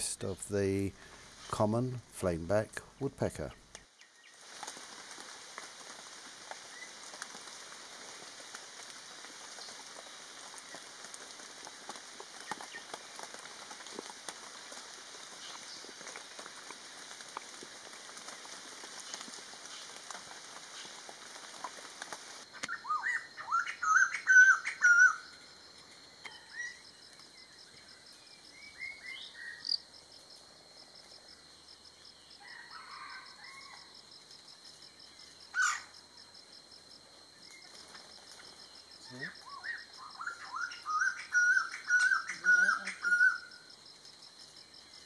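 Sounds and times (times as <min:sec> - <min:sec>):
background hiss: 0:00.0 - 0:45.0
insect-like trill: 0:22.6 - 0:45.0.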